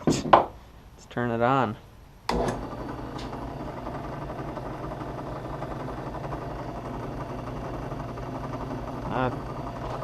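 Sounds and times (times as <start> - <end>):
drill press motor humming: 2.3 - 10.0.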